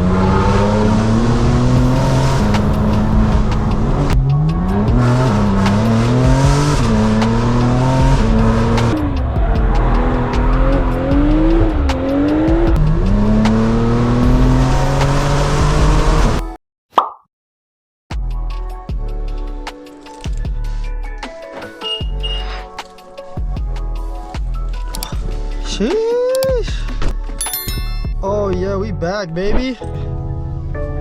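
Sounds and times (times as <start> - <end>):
car engine accelerating through gears: 0.0 - 16.4.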